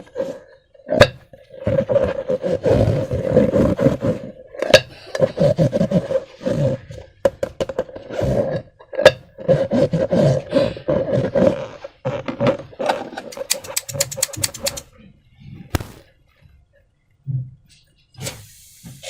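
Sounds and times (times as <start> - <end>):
sharp snaps: 13.3 - 14.8, 15.7 - 16.0
wet squelching and rubbery creaking: 15.7 - 16.1.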